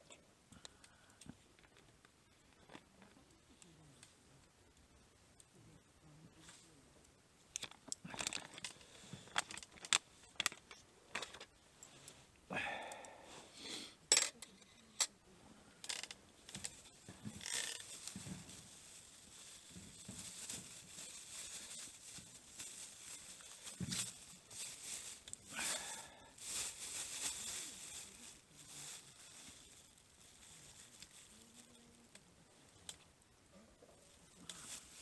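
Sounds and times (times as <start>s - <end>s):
rustle: 15.9s - 33.0s, 33.7s - 35.0s.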